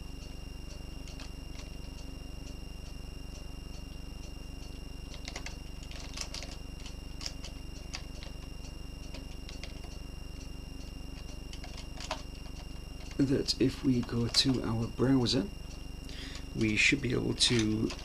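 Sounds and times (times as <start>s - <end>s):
steady electrical hum: 0.0s - 18.0s
computer keyboard and mouse clicks: 1.0s - 2.0s, 4.6s - 8.5s, 9.1s - 10.0s, 11.2s - 13.3s, 17.4s - 18.0s.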